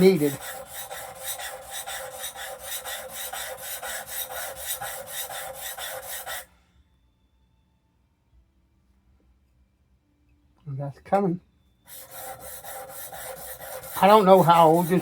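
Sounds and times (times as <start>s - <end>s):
plane blade scraping on sharpening stone: 0.0s - 6.5s, 11.9s - 15.0s.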